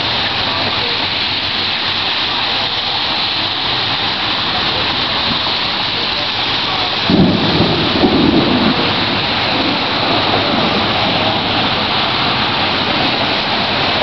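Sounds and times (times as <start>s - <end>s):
heavy rain falling: 0.0s - 14.0s
low thunder rumble: 5.2s - 14.0s.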